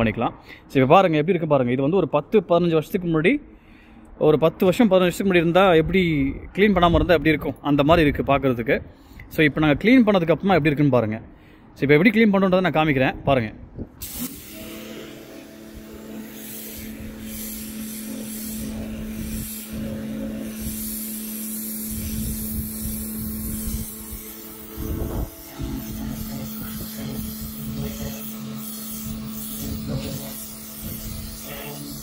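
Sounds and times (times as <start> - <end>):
pressure washer motor humming: 14.0 - 32.0
water jet hissing on patio: 14.0 - 32.0.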